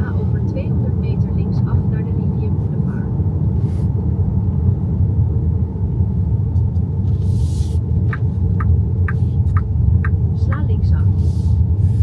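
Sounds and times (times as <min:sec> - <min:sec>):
road and tyre rumble in car cabin: 0:00.0 - 0:12.0
turn signal ticking: 0:08.0 - 0:11.2.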